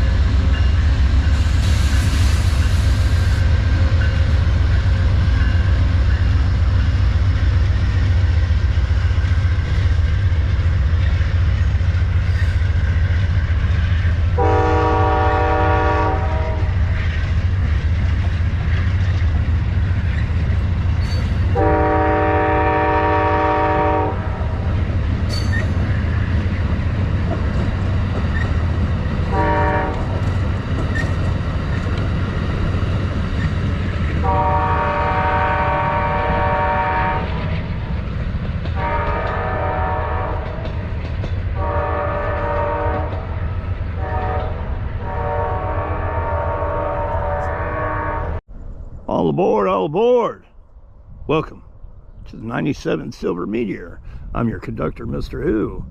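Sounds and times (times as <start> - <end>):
low rumble of train: 0.0 - 55.9
locomotive air horn blasts: 14.4 - 16.8, 21.5 - 24.4, 29.3 - 30.2, 34.2 - 37.3, 38.8 - 40.5, 41.6 - 43.3, 44.0 - 48.4.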